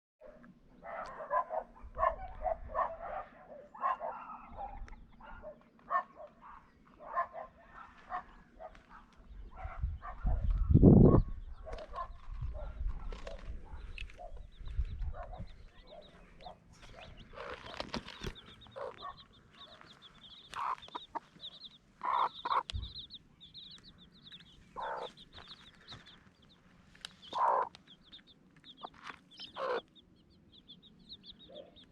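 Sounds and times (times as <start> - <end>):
hen clucking: 13.2 - 30.2.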